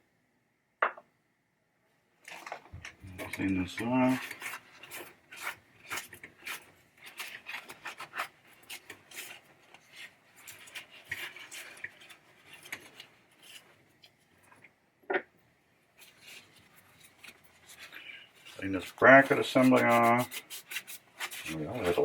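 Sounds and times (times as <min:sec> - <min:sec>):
scrubbing and scraping metal parts: 0:02.3 - 0:13.8.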